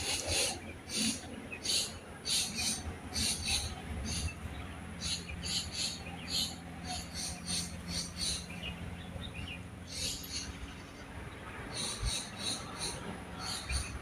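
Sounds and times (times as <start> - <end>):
bird rasping chirps: 5.0 - 8.5.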